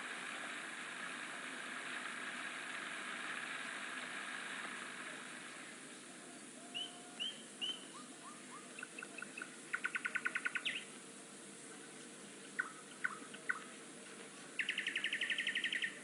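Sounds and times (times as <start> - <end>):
faint steady hiss: 0.0 - 16.0
songbird singing: 5.9 - 11.0, 11.6 - 16.0.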